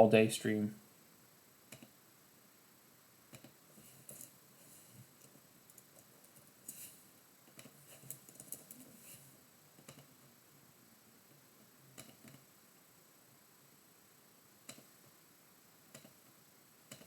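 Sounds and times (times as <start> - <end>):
faint clicks and light taps: 1.7 - 2.0, 5.1 - 6.8, 7.4 - 8.9, 14.6 - 15.2, 15.9 - 16.2.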